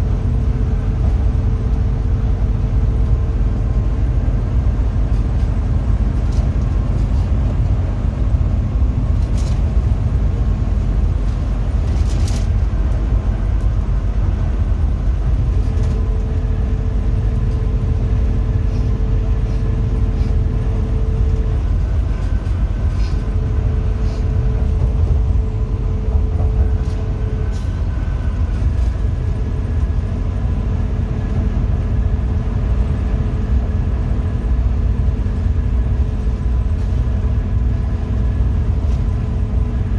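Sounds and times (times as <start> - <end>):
bus engine and road rumble: 0.0 - 39.9.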